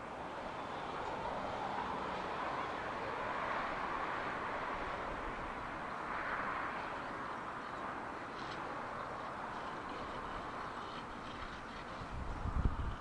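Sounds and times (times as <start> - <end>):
distant train rumble and hiss: 0.0 - 13.0.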